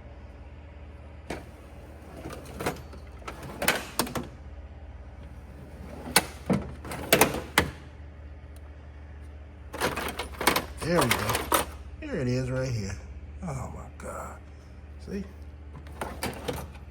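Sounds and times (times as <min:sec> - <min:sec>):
steady low hum: 0:00.0 - 0:16.9
tools clattering and clinking: 0:09.8 - 0:11.8.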